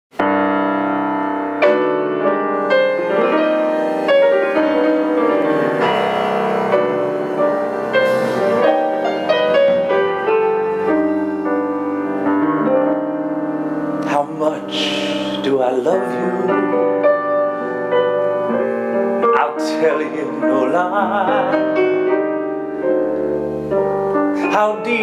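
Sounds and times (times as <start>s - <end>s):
slow piano chords and melody: 0.1s - 25.0s.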